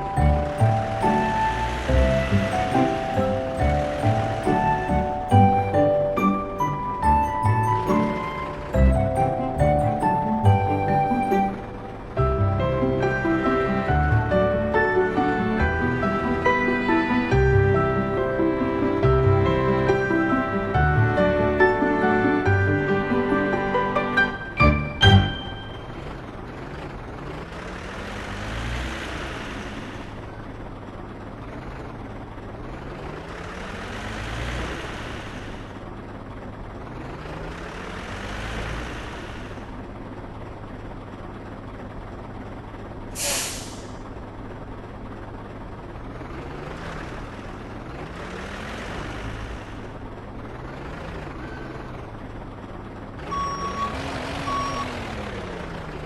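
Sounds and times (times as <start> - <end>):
heavy truck engine revving: 0.0 - 56.0
air brake hiss: 43.2 - 44.1
reversing beeps: 53.2 - 55.2.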